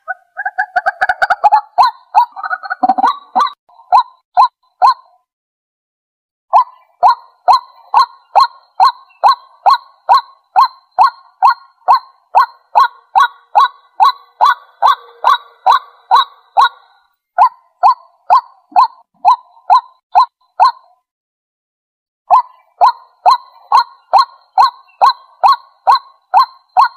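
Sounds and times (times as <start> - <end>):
waterhen calling: 0.0 - 5.0, 6.6 - 20.7, 22.3 - 26.9.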